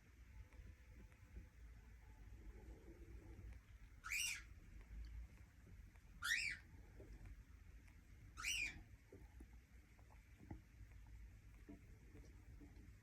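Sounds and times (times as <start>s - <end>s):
cockatiel chirping: 4.0s - 4.6s, 6.2s - 6.7s, 8.3s - 8.9s.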